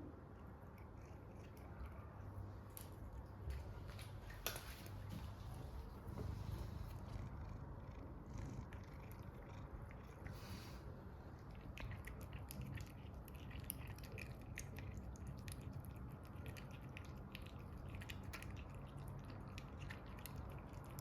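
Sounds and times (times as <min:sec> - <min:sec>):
cat purring: 0:06.2 - 0:15.2.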